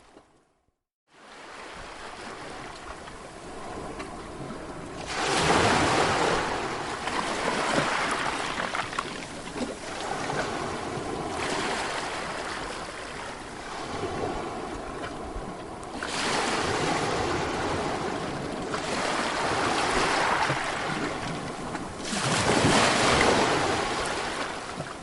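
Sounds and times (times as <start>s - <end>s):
sea waves breaking on shore: 1.1s - 25.0s.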